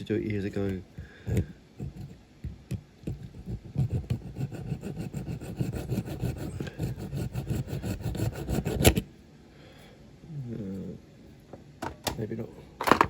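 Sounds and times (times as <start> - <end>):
hacksaw cutting metal: 3.8 - 9.0.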